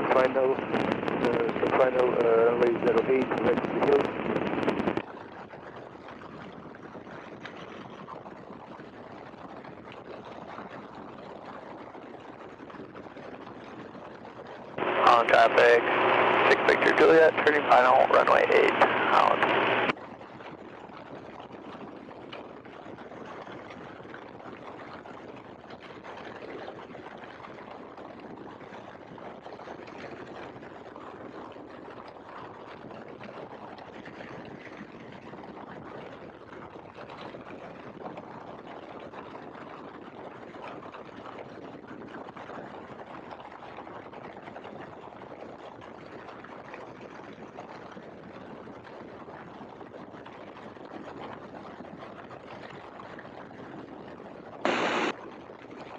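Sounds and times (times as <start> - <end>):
engine and wind hiss: 14.8 - 19.9.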